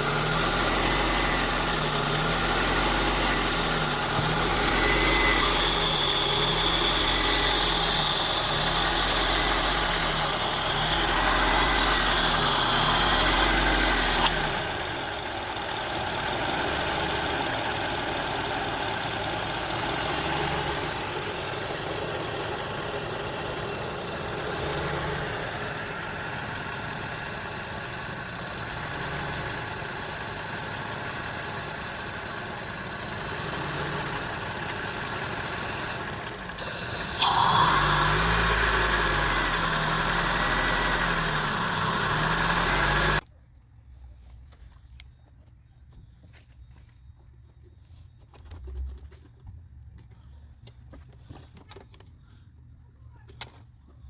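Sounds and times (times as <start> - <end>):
car engine idling: 0.0 - 43.3.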